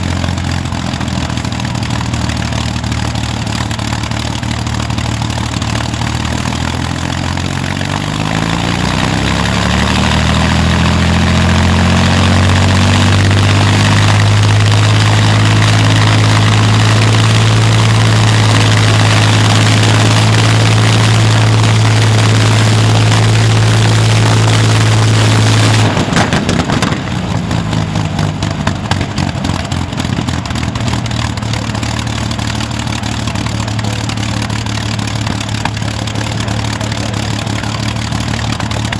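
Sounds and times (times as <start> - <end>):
aircraft engine revving: 0.0 - 38.9
engine crackling as revs drop: 9.9 - 32.4.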